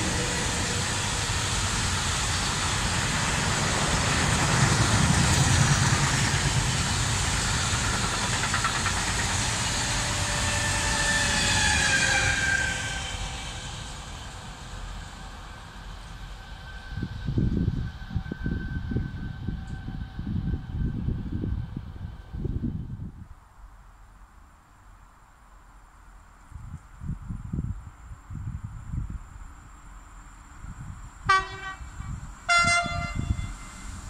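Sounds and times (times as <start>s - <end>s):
freight train wheels clattering: 0.0s - 12.5s
electric locomotive whine: 0.0s - 24.2s, 24.8s - 34.0s.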